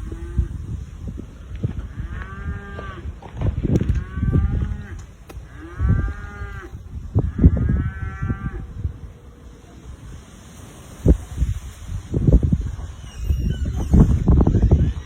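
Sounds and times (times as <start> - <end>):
wind on microphone: 0.0 - 15.0
cattle mooing: 3.8 - 8.7.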